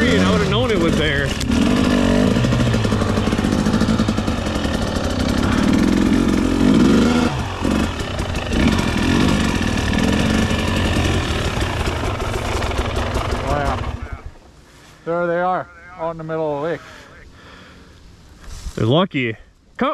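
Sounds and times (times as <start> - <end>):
dirt bike engine revving: 0.0 - 14.3.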